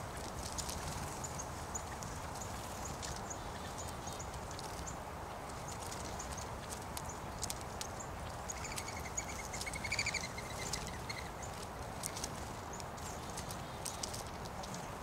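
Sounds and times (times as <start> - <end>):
small ticks: 0.2 - 15.0
small bird calling: 5.6 - 14.9.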